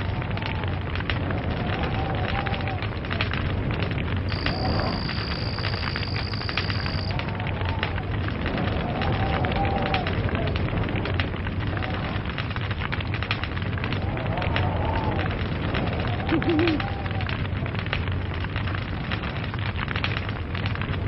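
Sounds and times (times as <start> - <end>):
log fire crackling: 0.0 - 21.0
low rumble: 0.0 - 21.0
high-pitched whine: 4.3 - 7.1.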